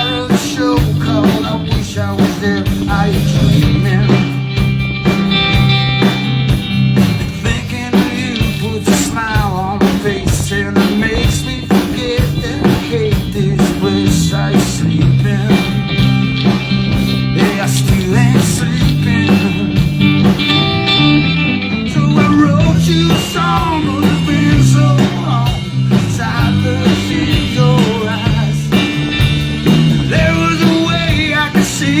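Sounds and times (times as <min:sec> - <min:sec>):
walking bass line: 0:00.0 - 0:32.0
drum kit beat: 0:00.3 - 0:21.0, 0:22.2 - 0:32.0
guitar lead with bending notes: 0:02.7 - 0:07.4, 0:19.0 - 0:31.9.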